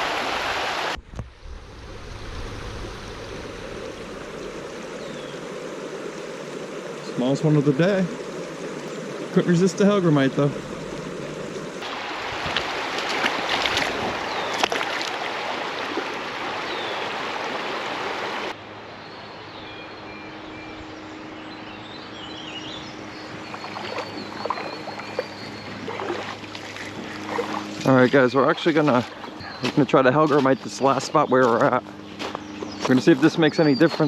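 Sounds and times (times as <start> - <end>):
creek water rushing: 0.0 - 19.6, 21.2 - 34.0
low steady hum: 0.9 - 15.1.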